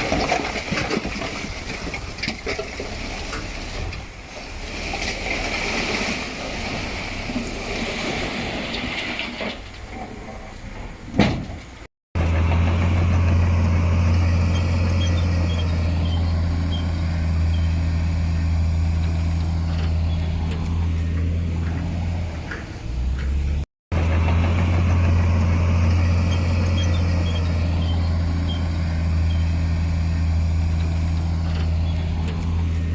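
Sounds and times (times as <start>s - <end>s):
diesel earthmoving machinery working: 0.0s - 32.9s
diesel engine running steadily: 12.2s - 32.9s.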